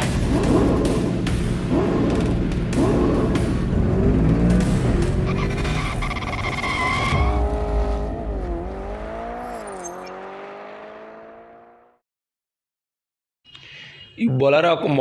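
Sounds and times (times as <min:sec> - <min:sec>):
racing car engine revving: 0:00.0 - 0:12.0
tyres skidding and squealing: 0:02.1 - 0:10.8.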